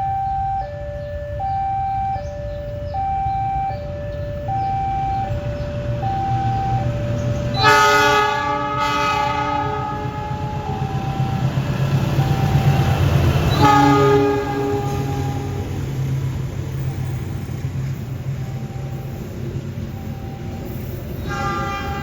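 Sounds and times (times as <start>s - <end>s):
level crossing two-note alarm: 0.0s - 15.0s
train passing rumble: 0.0s - 22.0s
train horn blasts: 7.5s - 11.6s, 13.0s - 16.1s, 21.2s - 22.0s.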